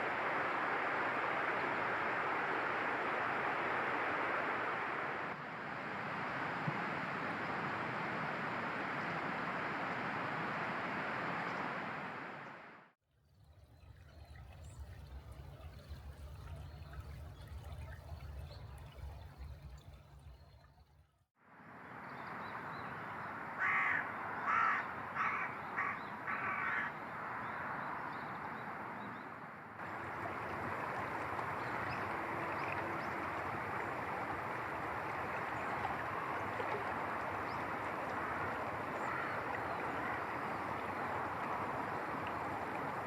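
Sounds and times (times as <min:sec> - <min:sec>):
steady rushing noise: 0:00.0 - 0:12.9
crow cawing: 0:23.6 - 0:27.0, 0:39.0 - 0:39.4.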